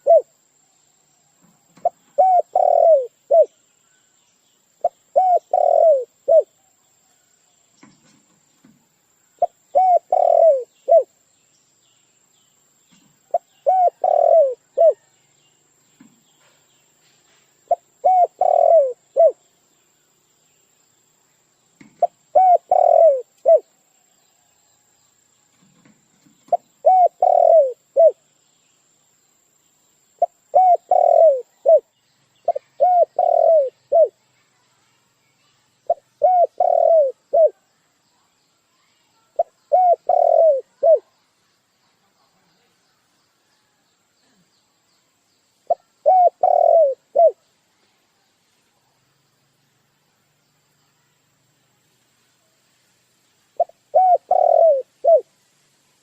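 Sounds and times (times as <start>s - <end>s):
dove cooing: 0.0s - 0.3s, 1.8s - 3.6s, 4.8s - 6.6s, 9.4s - 11.1s, 13.3s - 15.0s, 17.7s - 19.4s, 22.0s - 23.7s, 26.5s - 28.2s, 30.2s - 31.9s, 32.5s - 34.2s, 35.9s - 37.6s, 39.4s - 41.1s, 45.7s - 47.4s, 53.6s - 55.3s.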